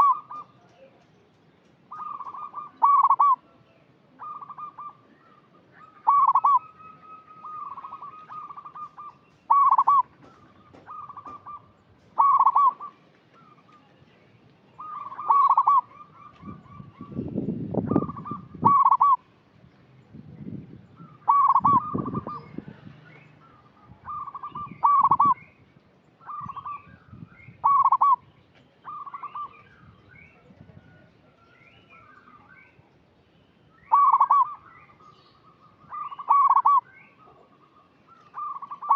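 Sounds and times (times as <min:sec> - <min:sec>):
dove cooing: 0:00.0 - 0:00.6, 0:01.9 - 0:03.5, 0:04.2 - 0:13.7, 0:14.8 - 0:19.2, 0:21.0 - 0:22.5, 0:23.4 - 0:25.4, 0:26.2 - 0:26.9, 0:27.6 - 0:28.2, 0:33.9 - 0:34.7, 0:35.4 - 0:38.9.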